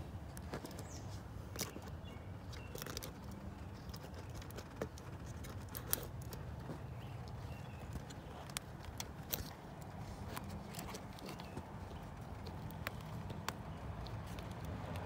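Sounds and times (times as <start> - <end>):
handling clicks and taps: 0.3 - 15.0.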